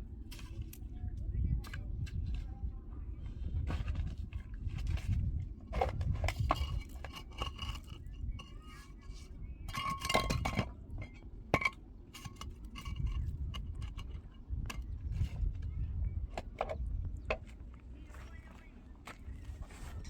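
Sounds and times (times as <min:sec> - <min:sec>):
steady low rumble: 0:00.0 - 0:20.0
hard objects clinking and knocking: 0:09.7 - 0:14.9.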